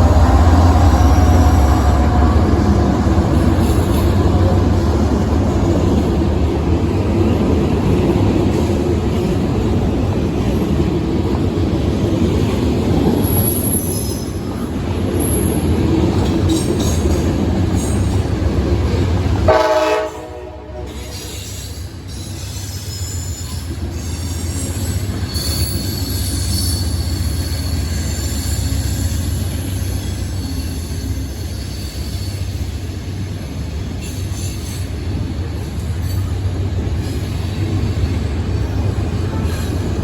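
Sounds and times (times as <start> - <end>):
train horn blast: 0.0 - 3.6, 19.5 - 21.4
train rumbling past: 0.0 - 40.0
high-pitched wheel squeal: 21.1 - 32.6.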